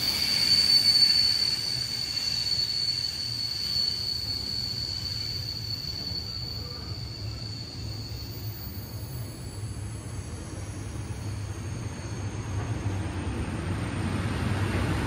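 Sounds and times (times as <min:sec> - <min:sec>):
train wheels squealing: 0:00.0 - 0:15.0
train low rumble: 0:04.2 - 0:15.0.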